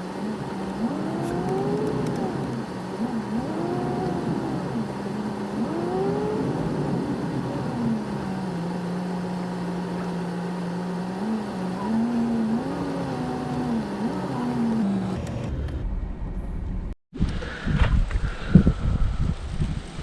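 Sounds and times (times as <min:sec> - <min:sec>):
vehicle engine while driving: 0:00.0 - 0:17.0
wind rumble on microphone: 0:00.2 - 0:09.8, 0:15.6 - 0:20.0.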